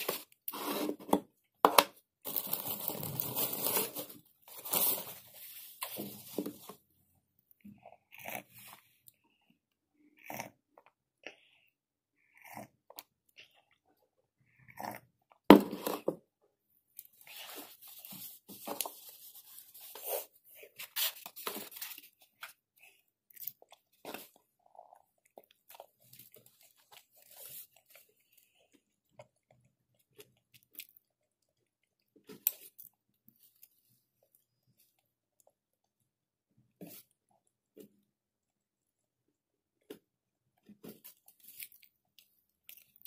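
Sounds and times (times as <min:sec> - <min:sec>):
chewing and crunching: 0:07.5 - 0:09.4, 0:10.0 - 0:15.5, 0:19.9 - 0:36.0, 0:40.6 - 0:43.0.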